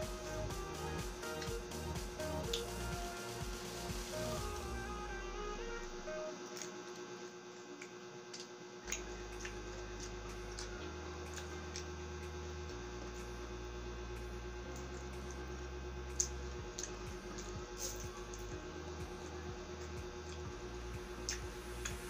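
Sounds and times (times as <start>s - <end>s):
steady electrical hum: 0.0s - 22.0s
person chewing food: 7.8s - 11.9s, 21.2s - 21.4s.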